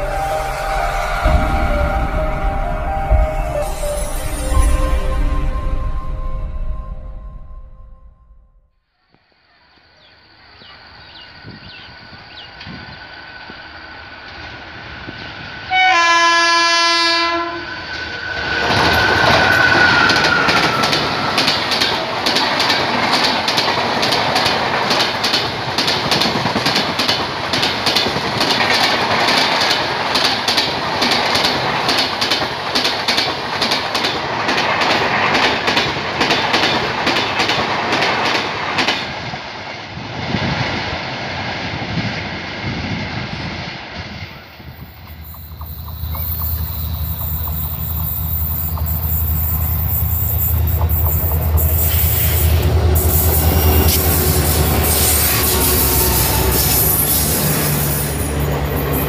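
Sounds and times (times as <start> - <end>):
train horn blast: 0.0 - 8.0, 15.7 - 17.9, 51.8 - 58.2
train wheels clickety-clack: 17.9 - 39.4, 45.0 - 59.0.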